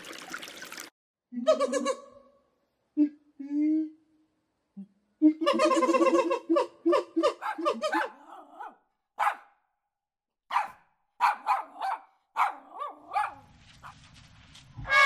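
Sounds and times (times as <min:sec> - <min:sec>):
puppy yapping barks: 0:07.2 - 0:09.6, 0:10.5 - 0:14.0.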